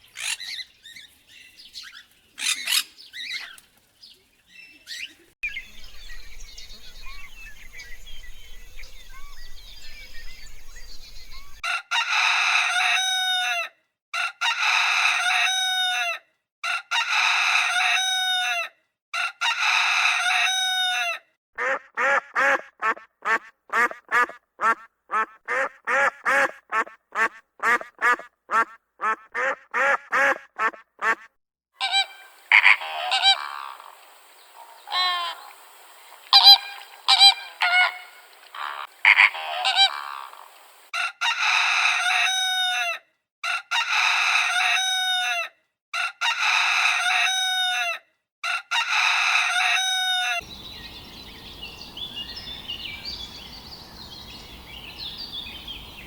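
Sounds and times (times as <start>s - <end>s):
waterfowl honking: 21.6s - 40.9s, 50.4s - 56.0s.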